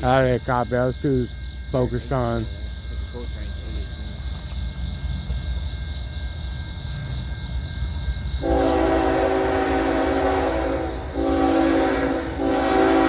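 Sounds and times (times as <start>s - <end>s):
low rumble of train: 0.0s - 13.0s
locomotive air horn chord: 8.4s - 13.0s.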